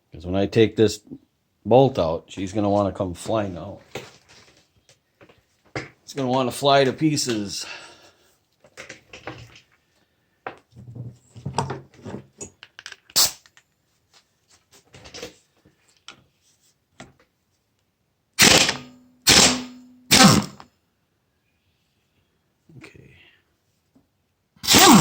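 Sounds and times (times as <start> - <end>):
power impact tool bursts: 18.4 - 20.6, 24.6 - 25.0.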